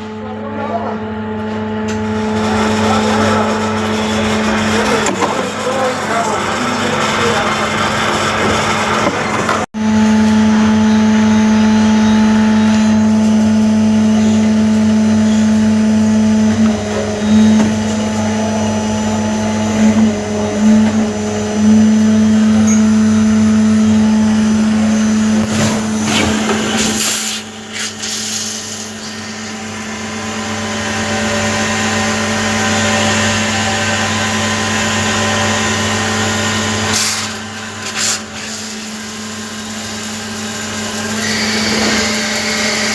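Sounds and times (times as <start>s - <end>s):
machine tool motor humming: 1.1s - 42.9s.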